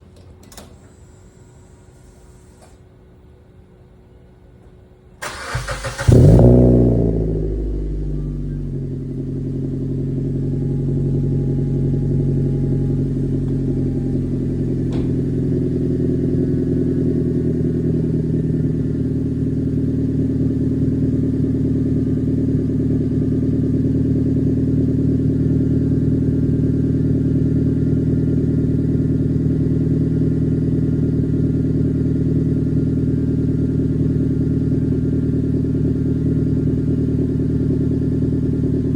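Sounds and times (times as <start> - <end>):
engine starter cranking: 5.2 - 6.6
car engine revving and idling: 5.2 - 38.9.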